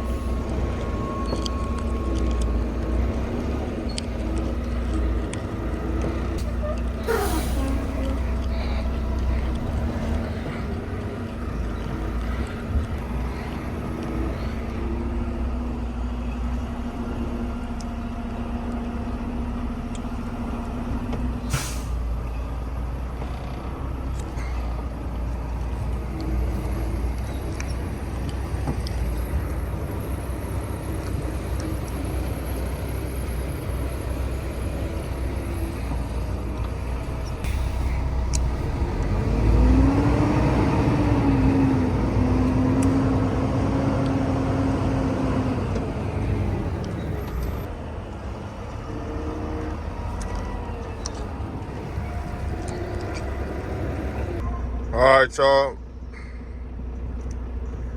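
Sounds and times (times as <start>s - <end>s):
diesel truck engine idling: 0.0s - 48.4s
air brake hiss: 7.0s - 8.0s, 21.4s - 22.1s.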